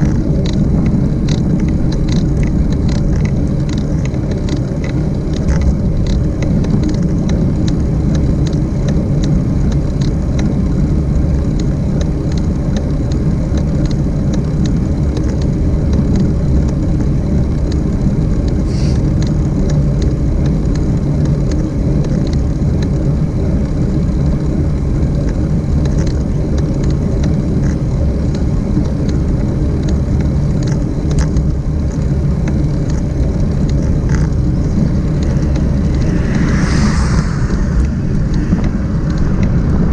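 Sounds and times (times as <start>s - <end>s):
road noise: 31.6s - 39.9s
wind buffeting microphone: 32.1s - 39.9s.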